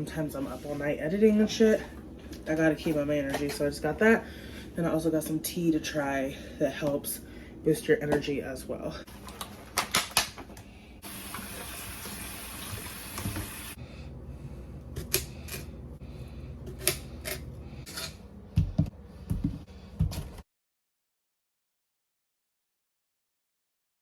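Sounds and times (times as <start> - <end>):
water running: 11.0 - 13.8.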